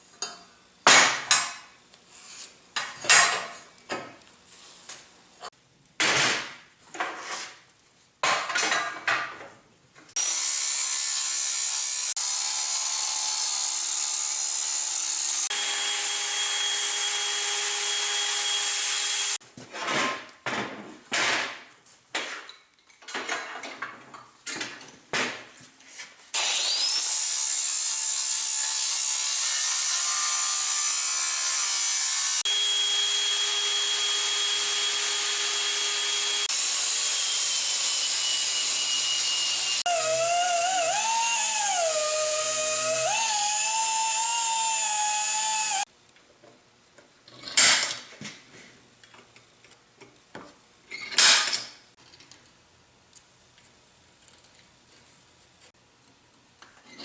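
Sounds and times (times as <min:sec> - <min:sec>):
power tool cutting steel: 0:10.2 - 0:19.4, 0:26.4 - 0:45.9.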